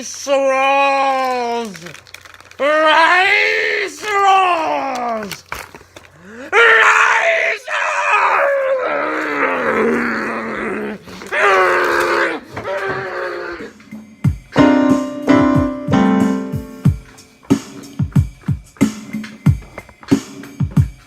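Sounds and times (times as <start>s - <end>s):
man groaning cries: 8.0s - 13.7s
music with drum beat: 14.1s - 21.0s.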